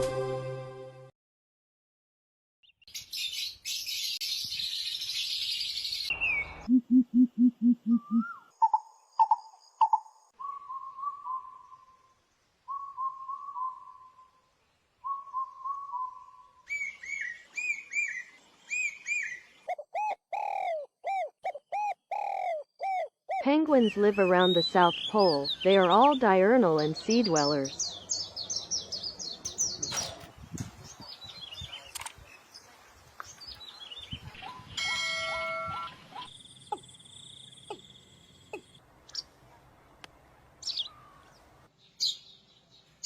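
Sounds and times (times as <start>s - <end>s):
bird calls hooting and chirping: 5.0s - 26.2s, 34.4s - 39.3s, 40.6s - 41.4s.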